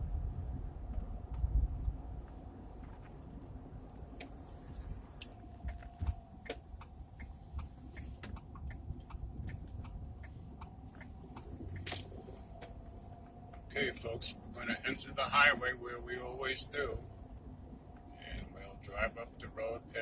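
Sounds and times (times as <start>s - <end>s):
road and engine rumble: 0.0s - 20.0s
small clicks and ticks: 5.1s - 13.7s.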